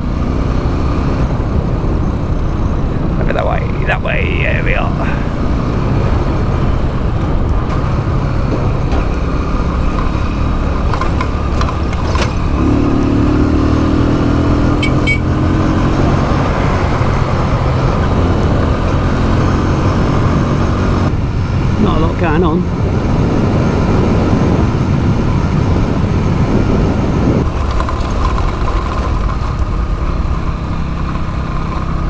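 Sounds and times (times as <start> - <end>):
motorbike engine running: 4.4 - 32.0
wind noise on microphone: 5.0 - 31.2
knocks and rattles: 5.8 - 13.3.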